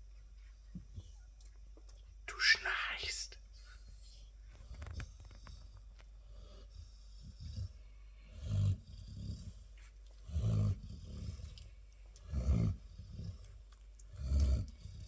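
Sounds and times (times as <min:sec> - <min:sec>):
dog snoring: 0:03.8 - 0:15.0.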